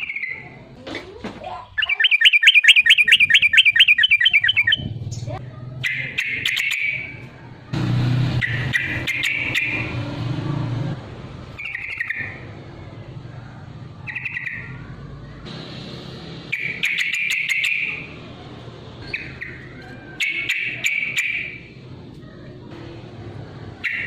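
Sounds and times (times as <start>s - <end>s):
bird chattering calls: 1.6s - 7.2s, 8.4s - 10.0s, 11.6s - 12.4s, 14.0s - 14.8s, 16.5s - 18.2s, 19.0s - 21.7s.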